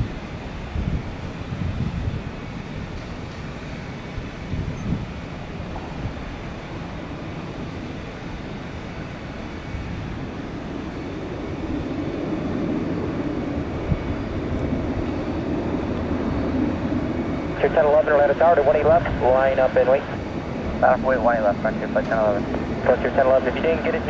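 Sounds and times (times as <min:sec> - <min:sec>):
jet engines rumbling: 0:05.2 - 0:24.0.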